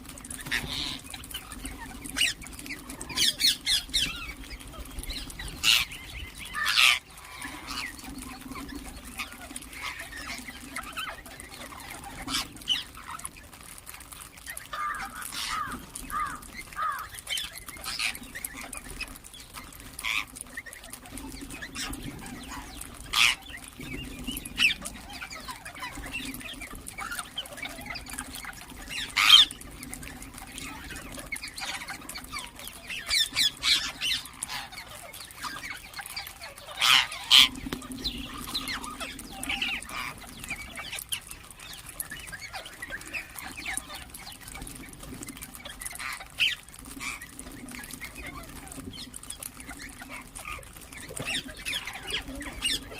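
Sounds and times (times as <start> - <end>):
parrots screeching: 0.4 - 1.1, 5.6 - 8.0, 14.5 - 18.2, 21.8 - 23.5, 28.9 - 29.6, 31.6 - 37.6.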